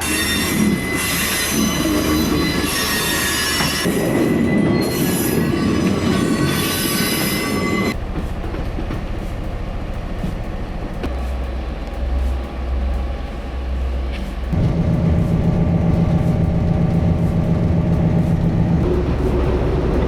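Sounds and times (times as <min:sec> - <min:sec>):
high-pitched metallic squeal: 0:00.0 - 0:08.0
clattering rumble: 0:08.0 - 0:20.0
diesel engine drone: 0:08.0 - 0:20.0.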